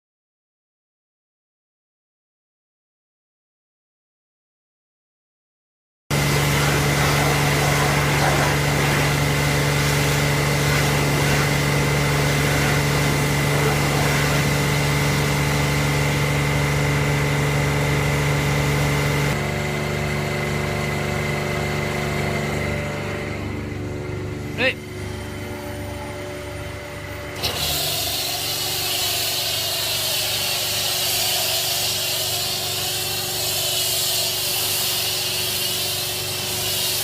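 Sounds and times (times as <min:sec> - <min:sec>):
pressure washer humming: 0:06.1 - 0:37.0
water spray hiss: 0:06.4 - 0:15.5, 0:27.6 - 0:37.0.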